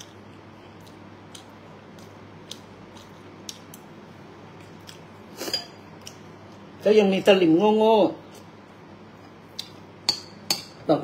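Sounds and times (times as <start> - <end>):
person chewing rice: 0.0 - 3.9, 4.5 - 5.2
low steady hum: 0.0 - 11.0.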